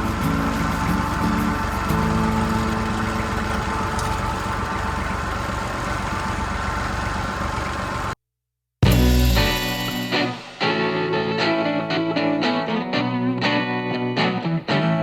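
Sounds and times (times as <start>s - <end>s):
engine rumbling: 0.0s - 8.2s.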